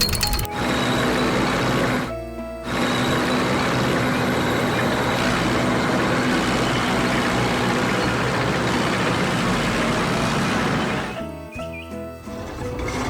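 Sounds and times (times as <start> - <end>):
heavy vehicle engine running: 0.0 - 11.4.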